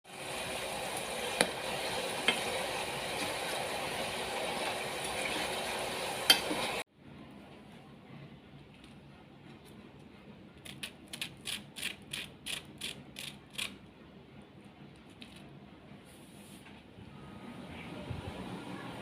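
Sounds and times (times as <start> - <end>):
fries sizzling in oil: 0.1 - 6.8.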